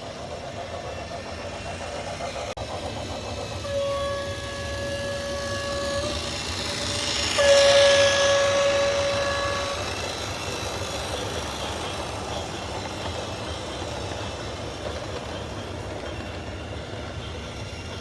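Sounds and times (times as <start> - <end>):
train running noise: 0.0 - 18.0
train horn: 3.6 - 10.4.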